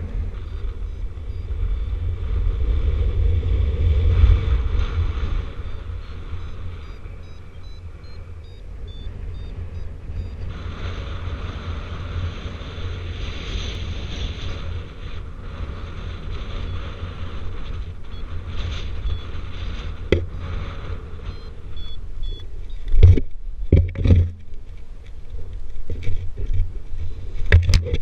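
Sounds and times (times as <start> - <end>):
wind buffeting microphone: 0.0 - 28.0
variometer high beeps: 0.4 - 2.0, 5.5 - 10.6, 19.0 - 19.4, 21.2 - 23.0.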